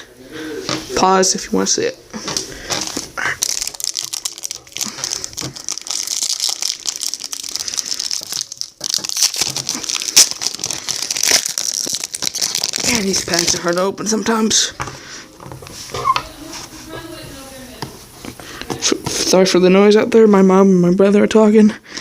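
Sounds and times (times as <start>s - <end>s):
foil wrapper crinkling and tearing: 2.9s - 14.2s.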